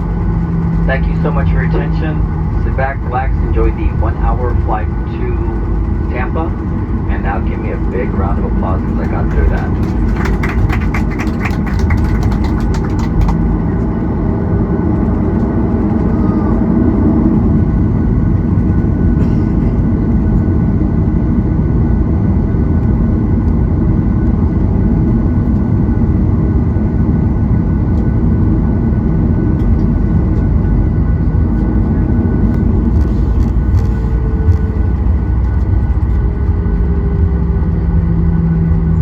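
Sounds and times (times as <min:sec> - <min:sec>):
faint steady whine: 0:00.0 - 0:14.7
jet engine cabin rumble: 0:00.0 - 0:39.0.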